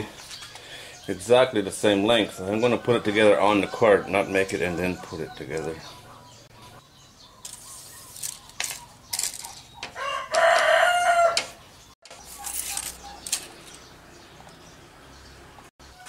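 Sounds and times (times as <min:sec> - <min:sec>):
rooster crowing: 0:02.7 - 0:06.3, 0:09.9 - 0:11.6.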